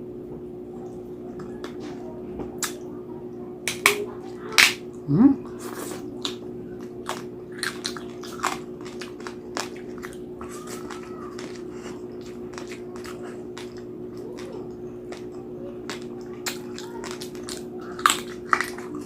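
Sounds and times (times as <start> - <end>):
steady low hum: 0.0 - 19.0
crunching and chewing crispy skin: 5.5 - 19.0.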